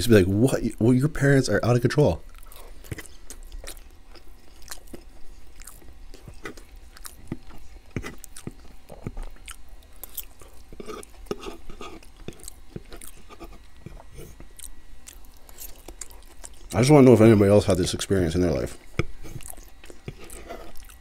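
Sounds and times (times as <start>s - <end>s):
chewing with wet mouth smacks: 2.3s - 16.8s, 18.8s - 21.0s.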